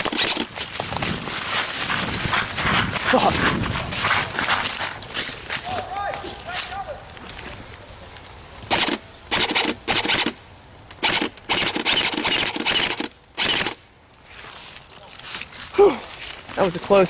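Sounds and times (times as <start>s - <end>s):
airsoft gun full-auto bursts: 0.0s - 0.5s, 8.7s - 10.4s, 11.0s - 13.8s.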